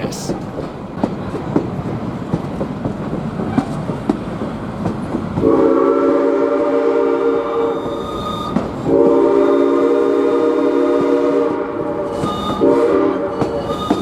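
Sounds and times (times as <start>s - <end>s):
steam locomotive whistle: 5.4s - 14.0s.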